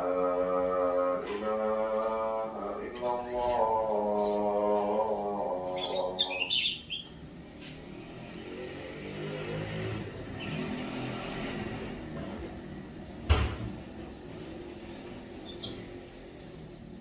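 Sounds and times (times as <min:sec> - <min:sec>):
bird chirping: 0:05.6 - 0:07.2, 0:15.4 - 0:15.9.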